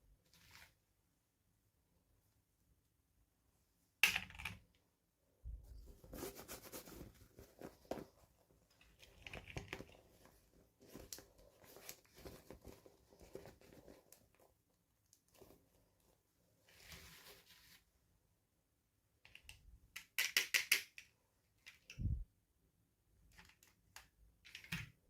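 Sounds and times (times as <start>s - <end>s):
plastic and cardboard rustling: 5.8s - 14.5s.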